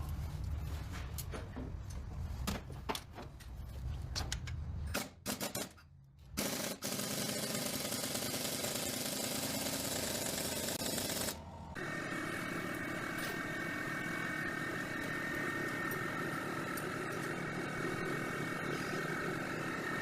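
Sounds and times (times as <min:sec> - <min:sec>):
power tool rattling: 0:06.4 - 0:11.4.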